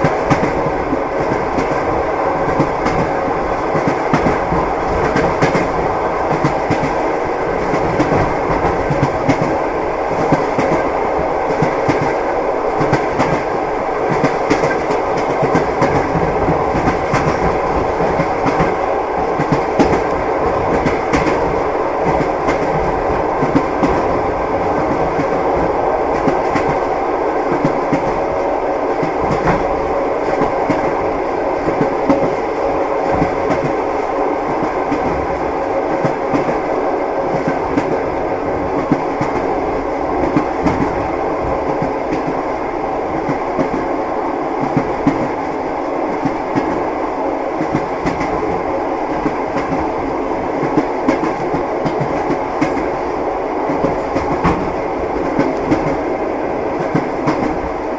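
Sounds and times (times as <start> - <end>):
train coach rumbling: 0.0 - 57.9.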